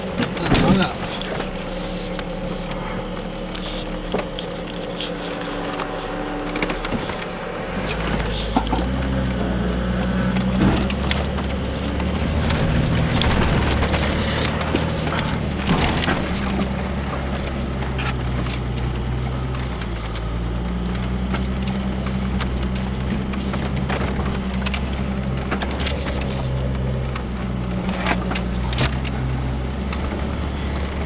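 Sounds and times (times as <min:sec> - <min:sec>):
car body knocks and rattles: 0:00.0 - 0:02.3, 0:10.3 - 0:20.2, 0:20.9 - 0:31.0
car engine running under load: 0:00.0 - 0:31.0.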